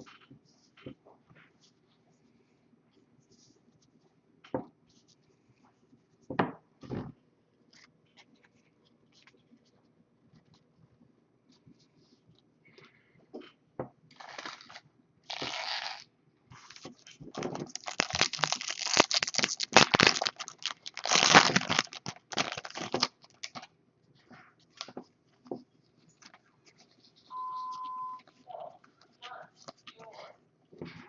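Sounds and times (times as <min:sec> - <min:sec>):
foil wrappers tearing and crinkling: 0:14.1 - 0:16.8, 0:17.7 - 0:23.7
cards rustling and tapping: 0:16.6 - 0:23.7
short steady beep: 0:27.3 - 0:28.3.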